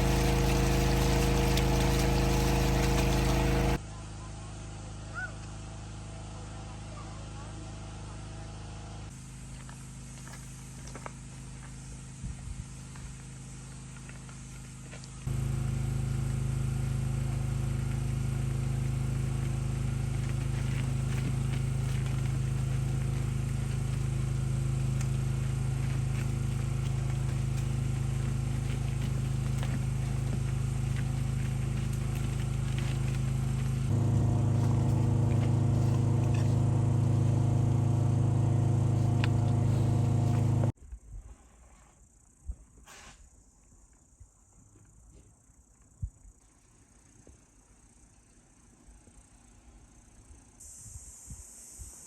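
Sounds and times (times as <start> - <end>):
motor humming: 0.0 - 3.8, 15.3 - 40.7.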